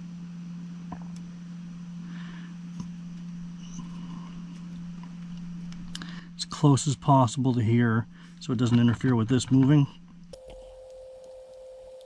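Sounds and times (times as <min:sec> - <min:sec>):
steady low hum: 0:10.4 - 0:12.0.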